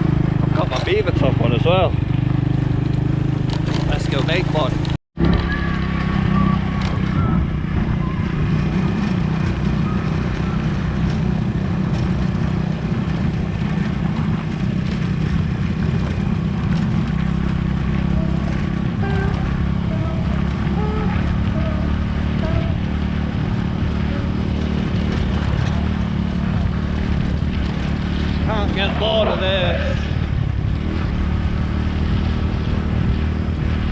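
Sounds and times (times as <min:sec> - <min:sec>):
motorcycle engine running: 0:00.0 - 0:33.9
wind noise on microphone: 0:29.3 - 0:33.9.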